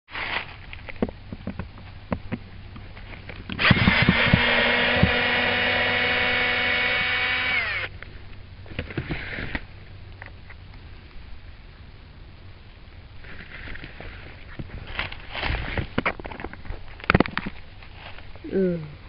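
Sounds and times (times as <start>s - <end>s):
cordless drill motor whine: 3.5s - 7.9s.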